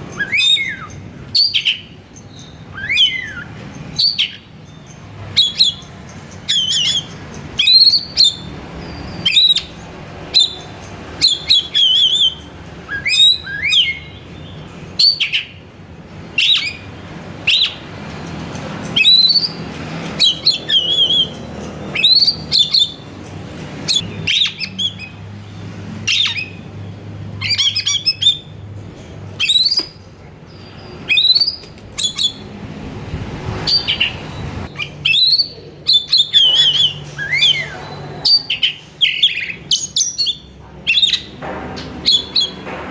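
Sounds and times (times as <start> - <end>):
bird singing whistled phrases: 0.1 - 4.5, 6.5 - 9.7, 11.2 - 15.6, 19.0 - 19.6, 20.2 - 23.0, 29.4 - 30.0, 30.6 - 32.4, 34.7 - 41.3.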